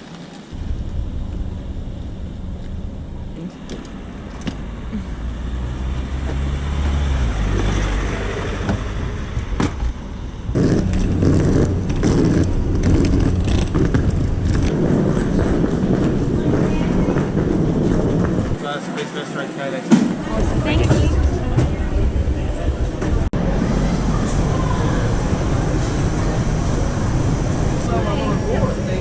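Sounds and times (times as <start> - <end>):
vehicle engine droning: 0.0 - 18.7, 20.2 - 29.0.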